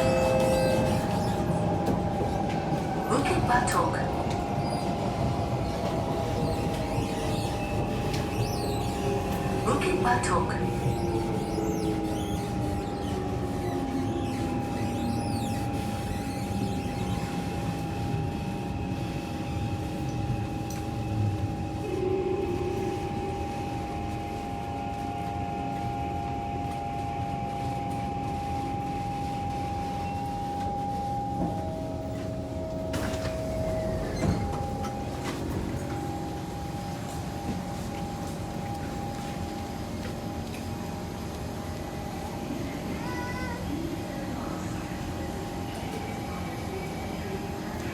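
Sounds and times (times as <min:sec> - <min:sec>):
train motor whine: 0:00.0 - 0:21.2.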